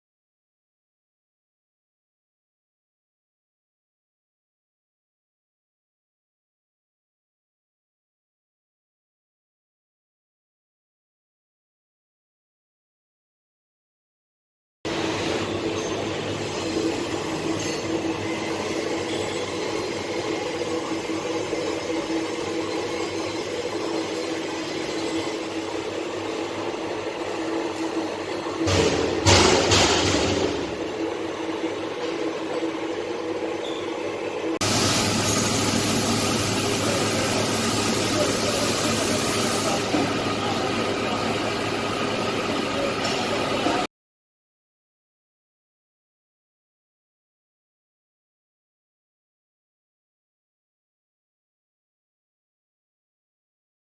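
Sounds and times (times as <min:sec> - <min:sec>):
sand mixer machine hum: 0:14.9 - 0:43.9
sand mixer machine humming: 0:30.5 - 0:43.9.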